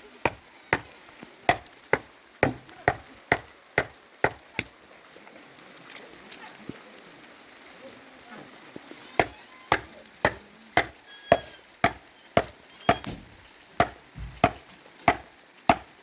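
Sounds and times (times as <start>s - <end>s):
chopping wood: 0.2s - 0.9s, 1.5s - 4.7s, 9.2s - 16.0s.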